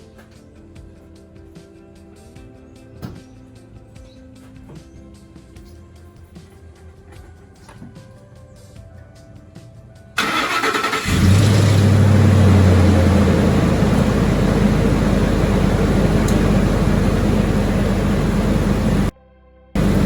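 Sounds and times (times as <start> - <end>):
engine idling: 10.2 - 19.1, 19.8 - 20.0
engine starter cranking: 10.2 - 19.1, 19.8 - 20.0.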